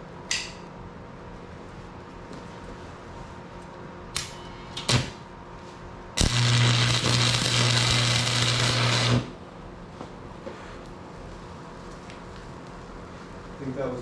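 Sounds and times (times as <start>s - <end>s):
electrode scratching crackles: 6.2s - 9.4s
welding arc crackling and buzzing: 6.2s - 9.4s.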